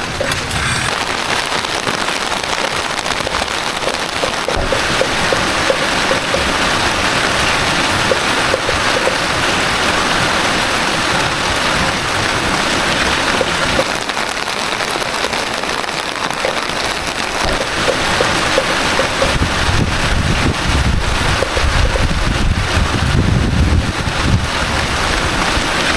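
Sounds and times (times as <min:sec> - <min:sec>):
heavy rain falling: 0:00.0 - 0:25.9
drips ticking: 0:00.1 - 0:10.4, 0:12.8 - 0:22.6.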